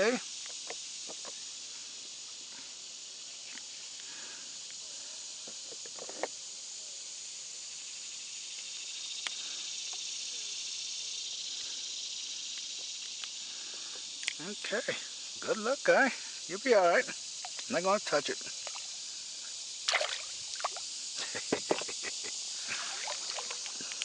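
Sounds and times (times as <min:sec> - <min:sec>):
high-pitched insect chorus: 0:00.0 - 0:24.0
faint clicks: 0:14.0 - 0:14.4.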